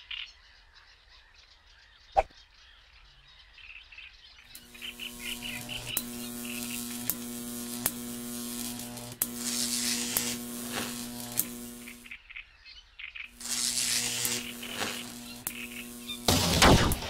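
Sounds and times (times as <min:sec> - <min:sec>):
electric buzzing hum: 0:04.5 - 0:12.2, 0:13.3 - 0:17.0
sharp crackling zaps: 0:04.5 - 0:12.2, 0:13.3 - 0:17.0.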